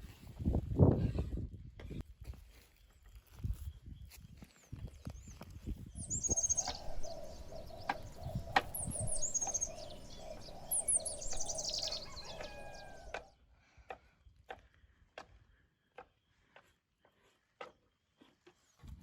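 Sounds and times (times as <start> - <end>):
songbird singing: 4.6 - 13.3.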